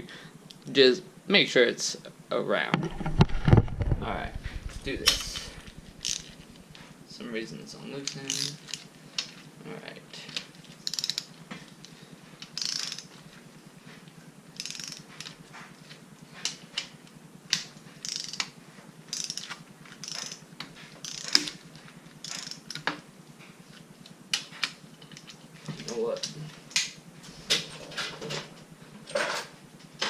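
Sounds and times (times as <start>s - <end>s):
torque wrench ratcheting: 4.4s - 6.4s, 8.1s - 8.8s, 10.8s - 11.4s, 12.4s - 13.1s, 14.6s - 15.4s, 17.5s - 18.5s, 19.1s - 20.4s, 21.0s - 21.6s, 22.2s - 22.9s.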